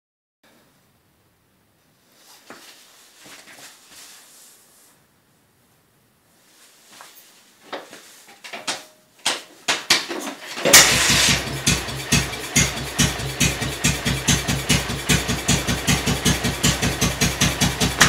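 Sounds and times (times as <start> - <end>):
clicks and knocks: 8.3 - 10.7
motorcycle engine running: 10.7 - 18.0.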